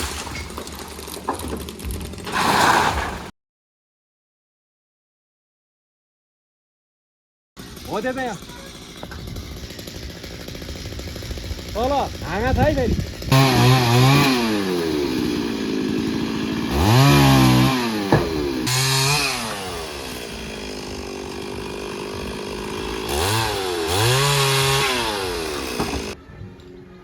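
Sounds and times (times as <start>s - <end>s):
chainsaw revving: 7.6s - 26.2s.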